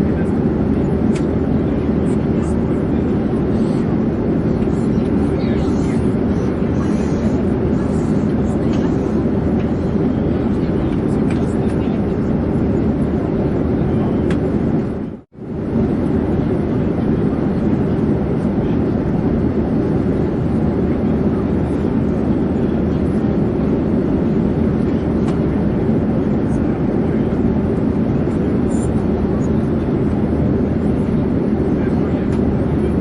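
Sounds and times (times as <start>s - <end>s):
airplane in flight rushing: 0.0s - 33.0s.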